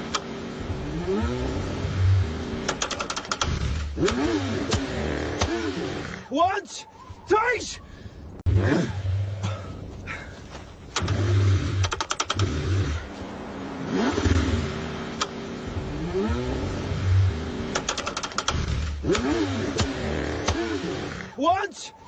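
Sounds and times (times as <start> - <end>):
car engine cranking: 0.0 - 6.3, 10.8 - 13.2, 13.8 - 21.4
starter rapid clicking: 2.6 - 5.6, 10.9 - 12.6, 17.7 - 20.7.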